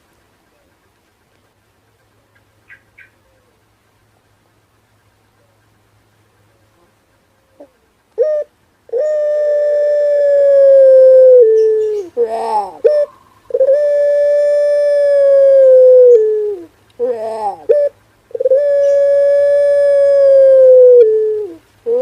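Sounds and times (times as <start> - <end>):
dove cooing: 2.7 - 3.7, 6.4 - 22.0.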